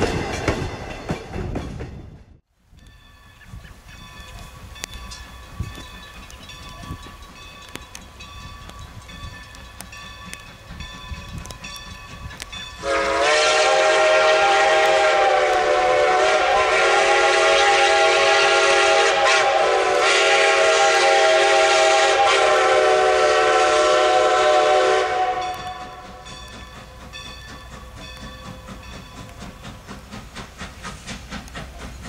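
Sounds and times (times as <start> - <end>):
steam whistle blast: 12.8 - 26.3.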